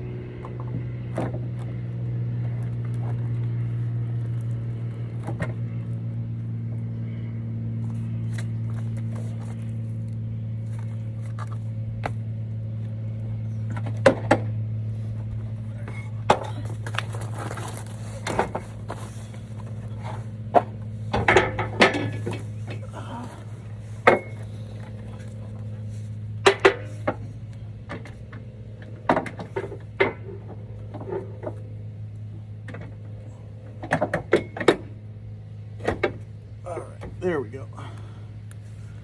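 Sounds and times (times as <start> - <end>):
steady low hum: 0.0 - 39.0
metal clinks knocks and scrapes: 15.7 - 22.9.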